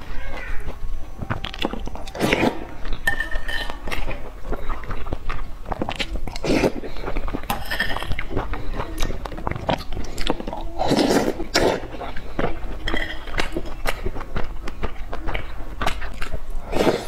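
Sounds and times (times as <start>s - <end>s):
person chewing food: 0.0s - 17.0s
metal spoon clinking on plate: 3.0s - 3.8s.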